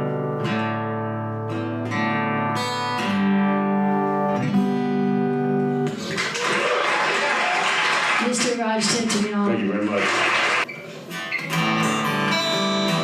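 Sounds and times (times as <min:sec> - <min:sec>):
acoustic guitar strumming chords: 0:00.0 - 0:06.0, 0:10.1 - 0:13.0.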